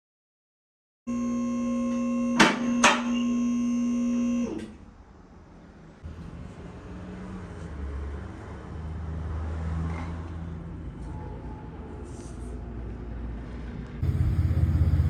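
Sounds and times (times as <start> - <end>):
electric hum: 14.0 - 15.0.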